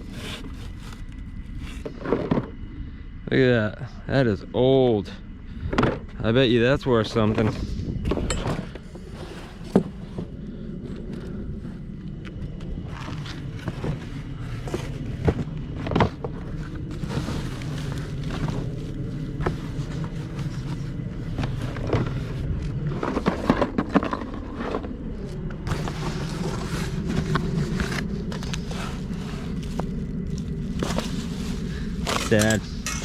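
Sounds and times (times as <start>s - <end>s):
steady low rumble: 0.0s - 33.0s
items knocking and clattering: 22.9s - 24.9s.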